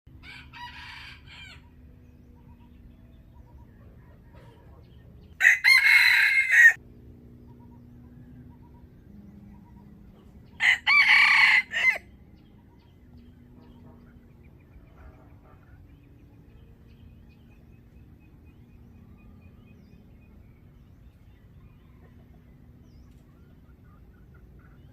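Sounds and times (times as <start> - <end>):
rooster crowing: 0.2 - 1.8, 5.4 - 6.8, 10.6 - 12.1.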